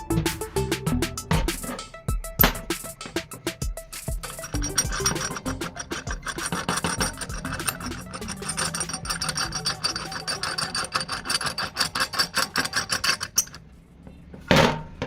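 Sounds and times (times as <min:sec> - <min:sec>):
tool rasping over a workpiece: 0:04.2 - 0:13.6.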